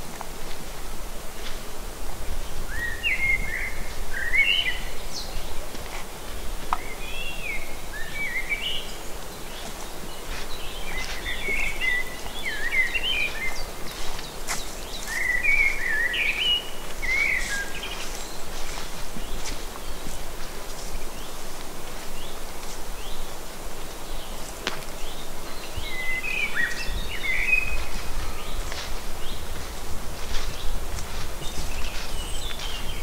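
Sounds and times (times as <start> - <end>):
songbirds warbling: 6.2 - 21.5, 24.0 - 33.0.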